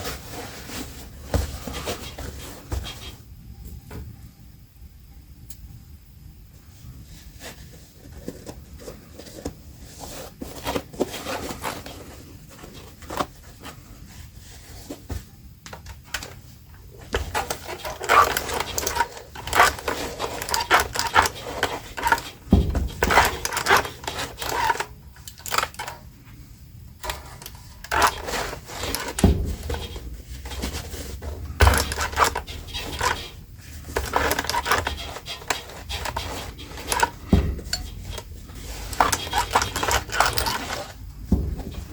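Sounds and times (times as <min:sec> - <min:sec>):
fabric rustling: 0:27.0 - 0:41.9.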